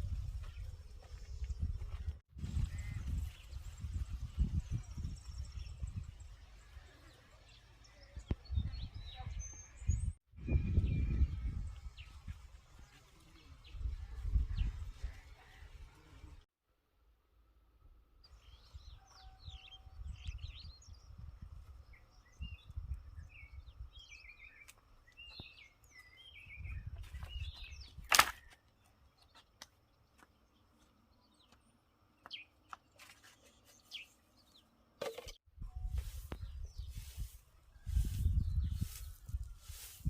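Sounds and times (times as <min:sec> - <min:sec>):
small birds chirping: 0:00.0 - 0:16.4, 0:18.2 - 0:40.0.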